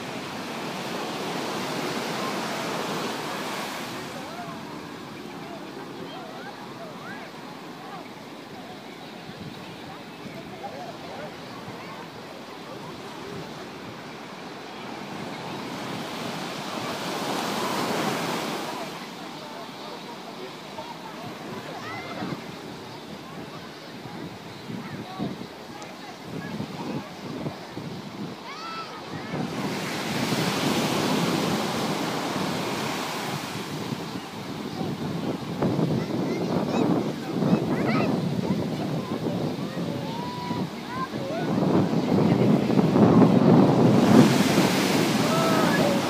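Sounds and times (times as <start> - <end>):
wave breaking on beach: 0.0 - 46.0
wind buffeting microphone: 21.0 - 46.0.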